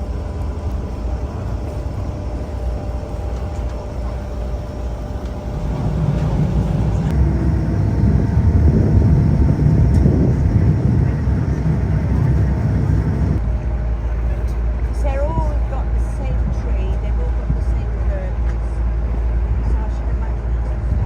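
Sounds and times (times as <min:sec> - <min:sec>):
boat engine rumbling: 0:00.0 - 0:21.0.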